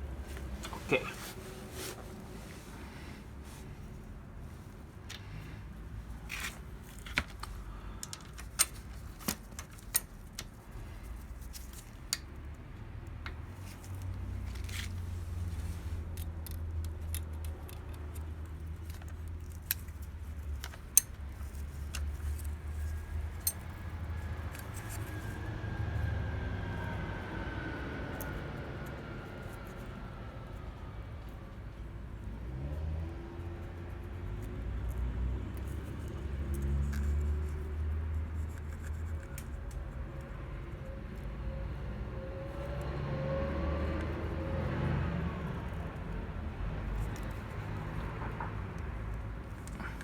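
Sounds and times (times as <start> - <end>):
metallic clicks of hand tools: 7.2 - 10.6, 16.2 - 22.5.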